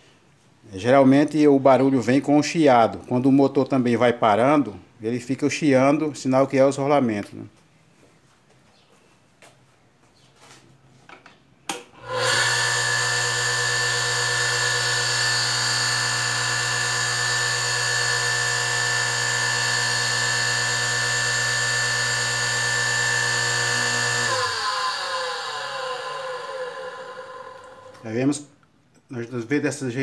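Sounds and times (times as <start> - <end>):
electric motor humming and whining: 12.0 - 28.1.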